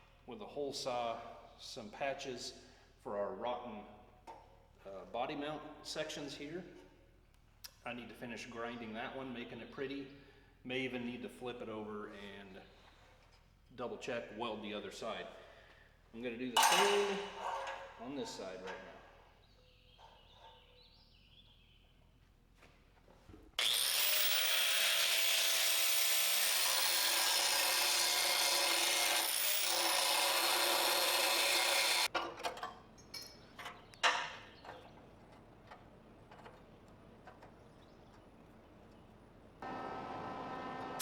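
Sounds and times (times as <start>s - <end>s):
angle grinder grinding steel: 23.6s - 32.1s.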